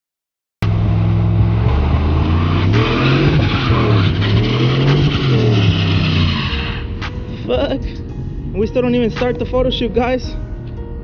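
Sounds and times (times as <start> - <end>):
truck engine revving: 0.6 - 8.0.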